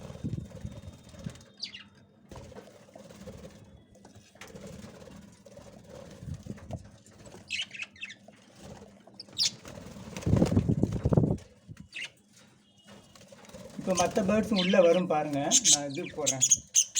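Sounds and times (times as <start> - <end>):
budgies flapping wings: 0.0 - 12.1, 12.9 - 16.9
high bird chirps: 13.8 - 16.9.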